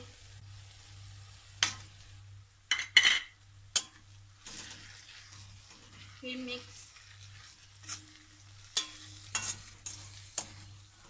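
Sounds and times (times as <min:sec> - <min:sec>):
onions sizzling in oil: 0:00.0 - 0:11.0
metal utensils clinking on pan: 0:02.7 - 0:05.0, 0:07.8 - 0:10.7.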